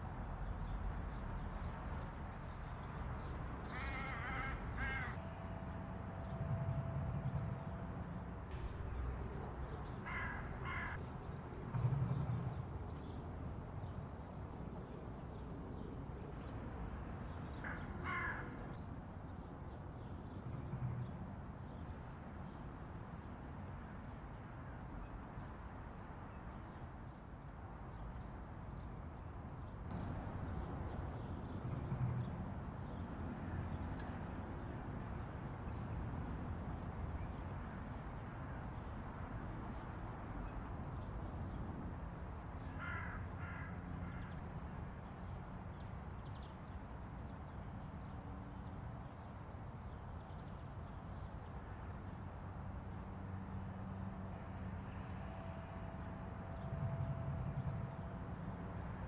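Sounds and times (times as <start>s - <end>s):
crow cawing: 3.7s - 5.2s, 10.0s - 11.0s, 17.8s - 18.5s, 42.8s - 44.3s
low steady rumble: 8.5s - 10.0s.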